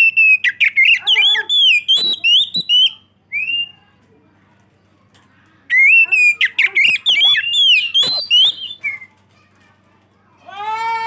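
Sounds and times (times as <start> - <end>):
bird singing whistled notes: 0.0 - 3.8, 5.7 - 9.2.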